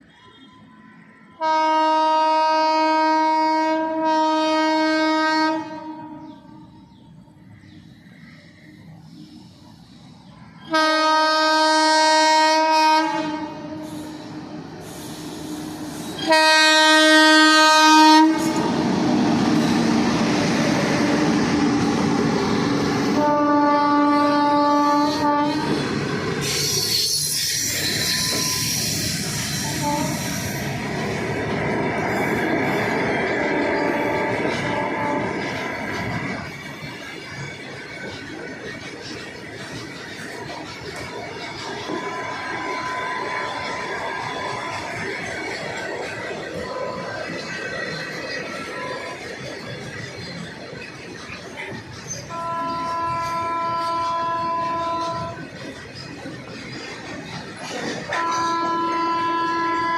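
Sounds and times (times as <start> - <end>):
train rumble and rail clatter: 0.0 - 59.9
locomotive horn blast: 1.4 - 6.6, 10.7 - 14.6, 16.2 - 18.8, 23.1 - 25.8, 29.6 - 30.4, 33.5 - 35.4, 52.3 - 55.4, 58.1 - 59.9
hissing rail noise: 6.2 - 59.9.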